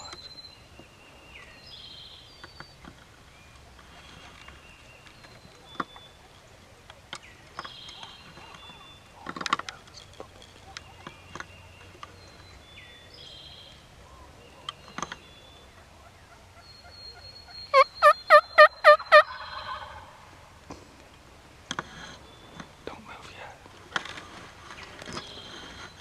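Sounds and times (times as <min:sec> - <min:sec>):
songbirds chirping faintly: 0:00.0 - 0:26.0
turkey gobbling: 0:16.0 - 0:20.2.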